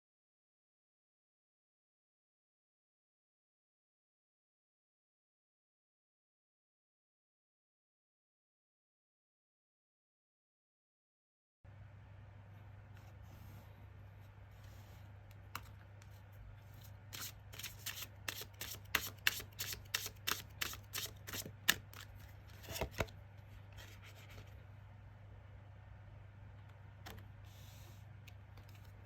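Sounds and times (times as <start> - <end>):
cards being shuffled: 14.6 - 23.1.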